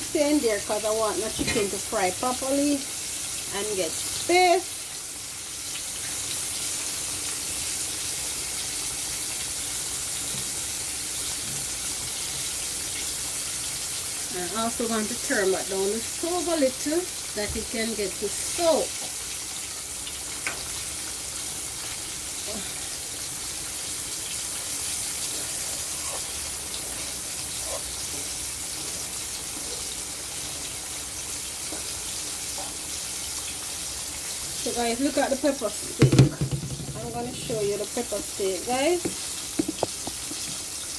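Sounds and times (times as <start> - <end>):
chicken sizzling in hot oil: 0.0 - 40.9
oil popping: 34.7 - 40.9.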